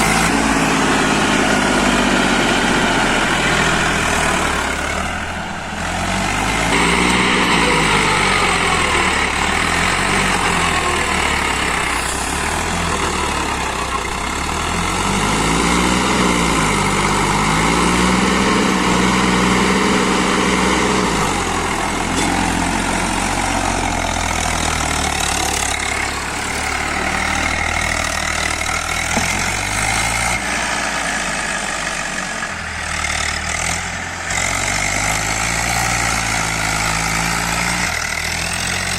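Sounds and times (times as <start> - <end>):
tractor diesel engine revving: 0.0 - 38.9.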